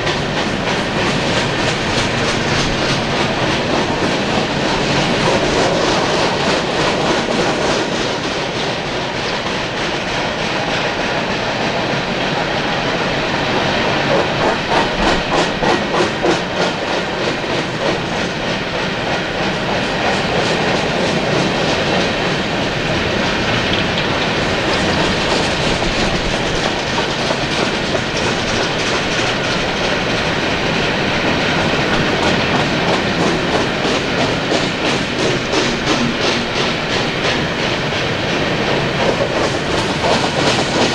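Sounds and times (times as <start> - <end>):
train rumble and rail noise: 0.0 - 40.9.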